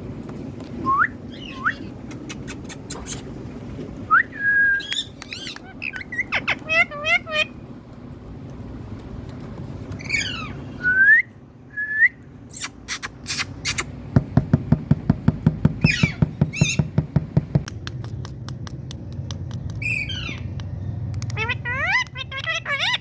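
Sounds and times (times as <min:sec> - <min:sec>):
parrot whistling: 0:00.8 - 0:01.9, 0:04.1 - 0:07.5, 0:10.0 - 0:13.9
parrot warbling squawks: 0:04.8 - 0:07.6, 0:10.0 - 0:10.7, 0:15.8 - 0:16.9, 0:19.8 - 0:20.5, 0:21.3 - 0:23.0
parrot clicks: 0:17.6 - 0:22.6.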